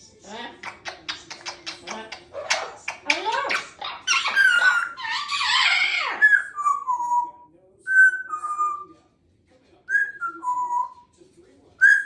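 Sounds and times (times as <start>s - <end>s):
parrot whistling: 2.1s - 8.9s.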